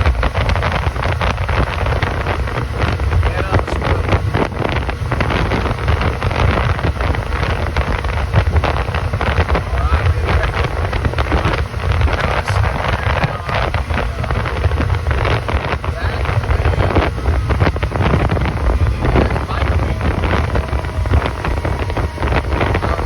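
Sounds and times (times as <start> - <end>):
boat engine drone: 0.0 - 23.0
water rushing along hull: 0.0 - 23.0
wind buffeting microphone: 0.0 - 23.0.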